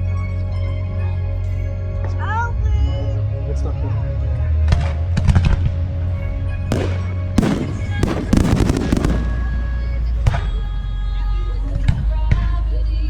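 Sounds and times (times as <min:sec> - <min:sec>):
background music: 0:00.0 - 0:13.0
fireworks crackles: 0:06.7 - 0:10.2
fireworks bangs: 0:06.7 - 0:10.6.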